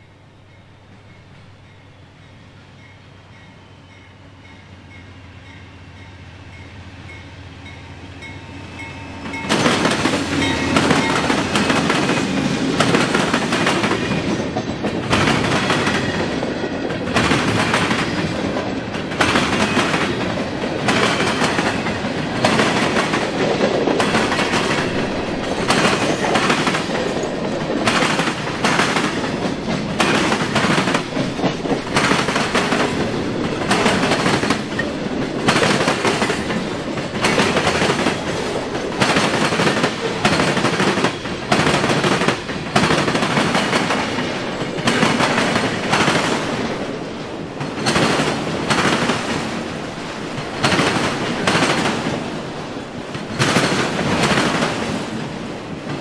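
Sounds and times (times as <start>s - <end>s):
freight train passing: 0.0s - 56.0s
wheels clattering over rail crossing: 9.2s - 52.3s.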